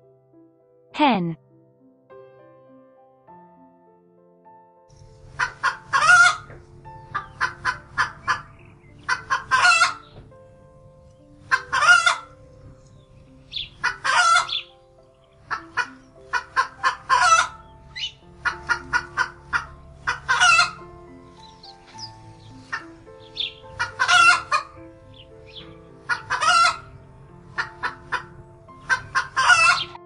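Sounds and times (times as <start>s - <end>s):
hens cackling: 5.4s - 10.2s, 11.4s - 12.4s, 13.5s - 30.0s.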